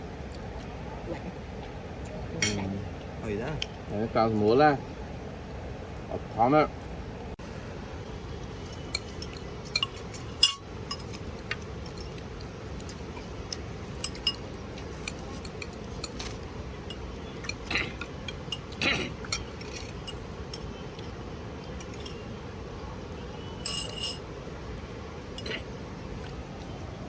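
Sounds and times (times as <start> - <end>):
dishes and cutlery clinking: 2.4 - 2.7, 8.6 - 20.7, 23.6 - 24.3, 25.3 - 25.7.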